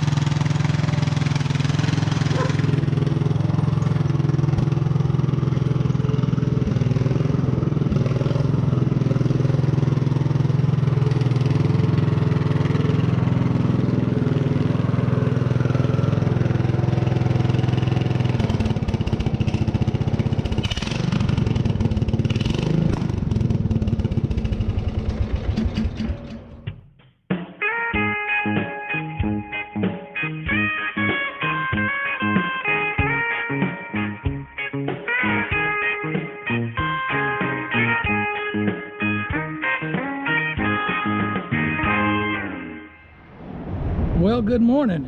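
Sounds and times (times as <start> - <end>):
mower engine running without muffler: 0.0 - 26.9.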